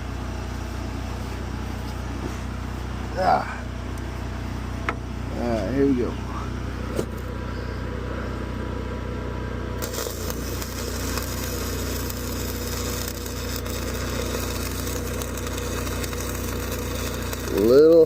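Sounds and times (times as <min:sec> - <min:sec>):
engine humming: 0:00.0 - 0:18.0
welding arc crackling: 0:09.8 - 0:18.0.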